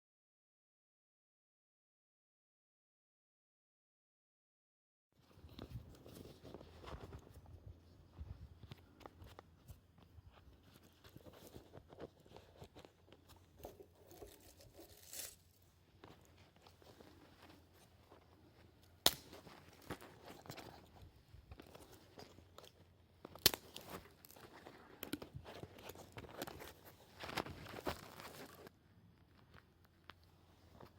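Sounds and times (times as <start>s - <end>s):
crunching and rustling: 8.1s - 30.9s.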